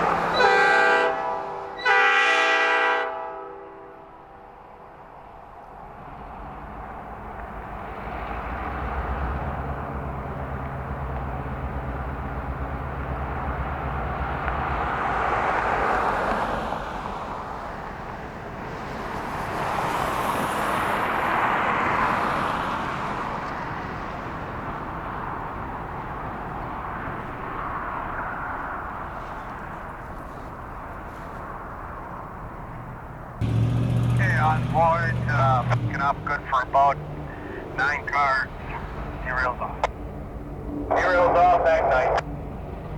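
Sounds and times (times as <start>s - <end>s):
passing vehicles: 0.0s - 42.9s
low engine drone: 32.8s - 42.9s.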